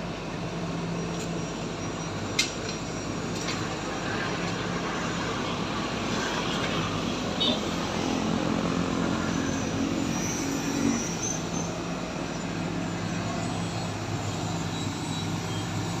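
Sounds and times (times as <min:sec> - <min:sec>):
excavator diesel engine: 0:00.0 - 0:16.0
faint high squeal: 0:09.0 - 0:16.0.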